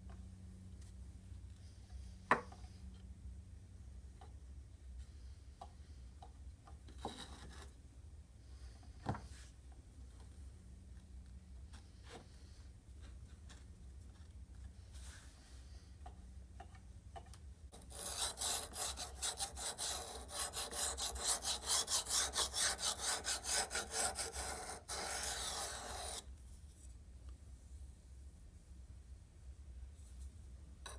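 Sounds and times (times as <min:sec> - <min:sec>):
rasping strokes on metal: 0:17.7 - 0:26.2
steady rubbing on metal: 0:17.7 - 0:26.2.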